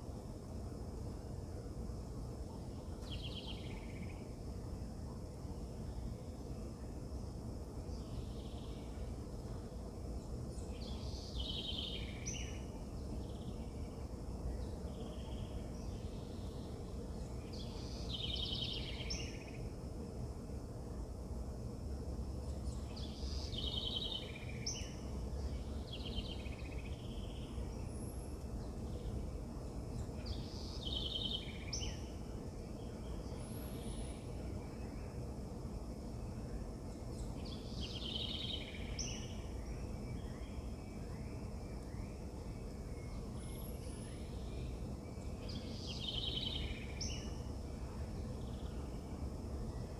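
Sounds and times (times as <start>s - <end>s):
low outdoor rumble: 0.0s - 49.9s
songbird trilling phrase: 10.6s - 13.9s, 17.5s - 19.6s, 22.7s - 27.8s, 30.2s - 32.1s, 37.2s - 42.2s, 42.9s - 47.4s.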